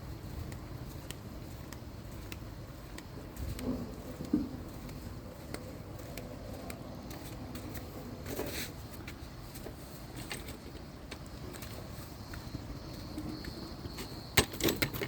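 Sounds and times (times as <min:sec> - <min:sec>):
faint clicks and taps: 0:00.3 - 0:08.0.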